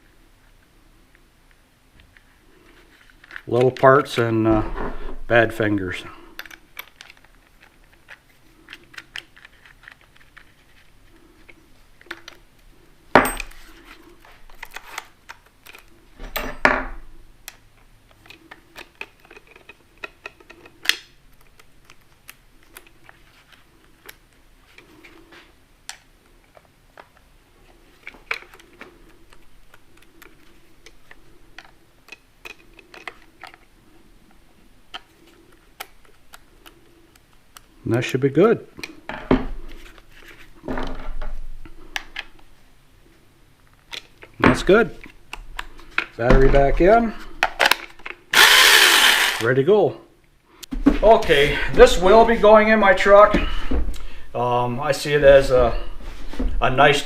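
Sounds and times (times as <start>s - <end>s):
tools and parts clinking: 6.3s - 10.6s, 13.2s - 13.8s, 15.6s - 16.9s.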